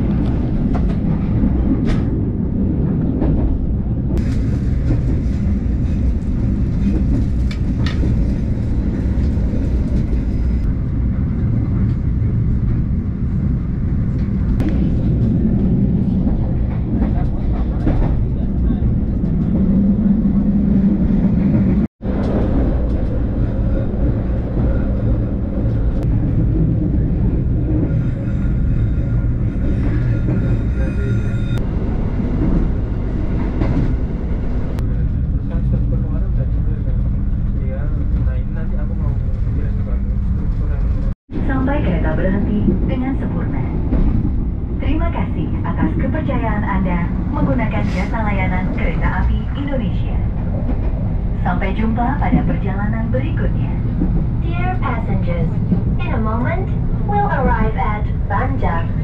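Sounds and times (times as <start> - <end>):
train rumbling on rails: 0.0 - 59.0.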